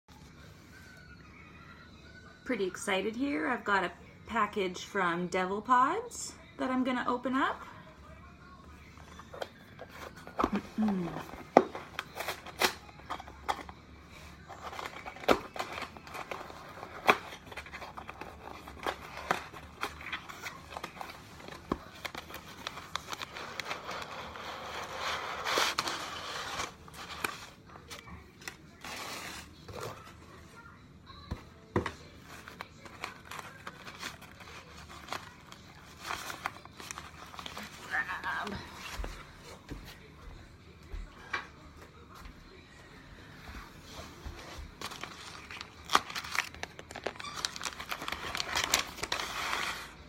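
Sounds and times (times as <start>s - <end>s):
packing material crinkling and tearing: 14.4s - 30.1s, 32.2s - 38.2s, 44.7s - 50.0s.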